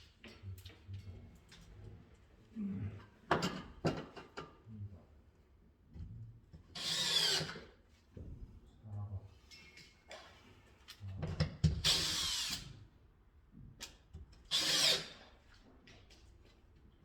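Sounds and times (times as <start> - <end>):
cordless drill spinning: 6.8 - 7.5, 14.5 - 15.2.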